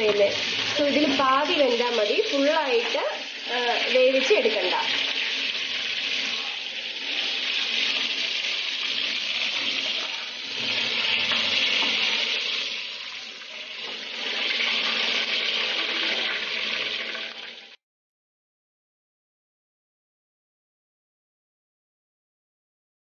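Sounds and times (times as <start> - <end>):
chicken sizzling in hot oil: 0.0 - 17.8.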